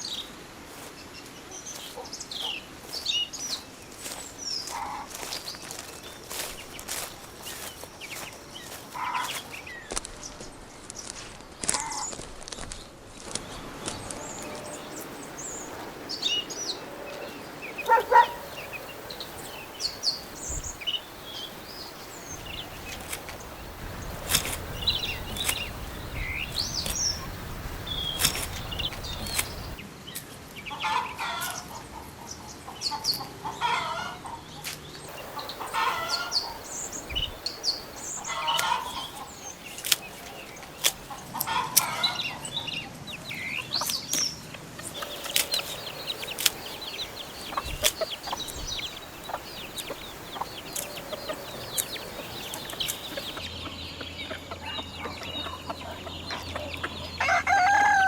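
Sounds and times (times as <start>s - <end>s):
bird clucking: 13.6s - 29.8s, 35.1s - 42.2s, 45.0s - 57.0s.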